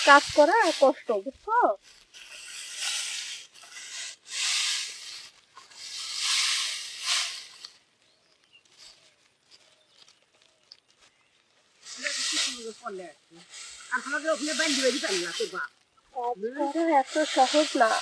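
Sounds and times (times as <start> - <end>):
brushing swishes: 0.0 - 7.8, 11.8 - 15.8, 16.6 - 18.0.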